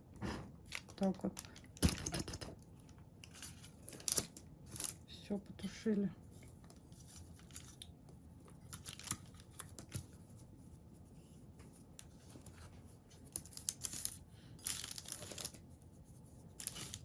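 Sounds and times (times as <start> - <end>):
paper rustling: 11.6 - 15.6, 16.3 - 17.0.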